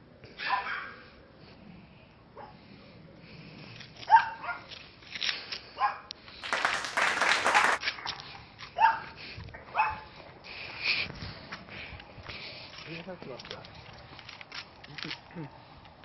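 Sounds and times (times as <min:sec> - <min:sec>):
dog barking: 0:00.4 - 0:01.0, 0:04.1 - 0:04.7, 0:05.8 - 0:06.1, 0:08.8 - 0:09.1, 0:09.7 - 0:10.0.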